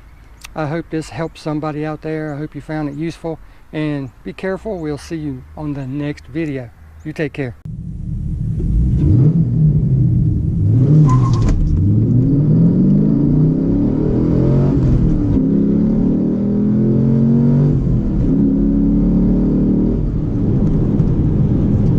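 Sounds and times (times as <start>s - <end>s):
car engine revving: 7.7s - 21.9s.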